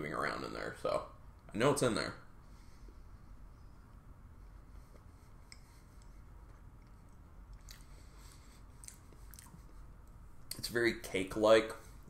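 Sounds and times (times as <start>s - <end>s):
faint chewing: 3.9s - 10.6s
soft mouth clicks: 8.8s - 9.8s.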